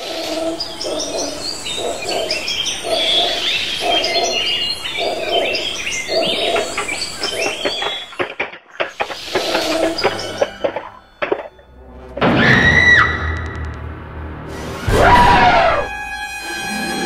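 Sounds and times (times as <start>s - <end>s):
birds chirping and whistling: 0.0s - 11.6s.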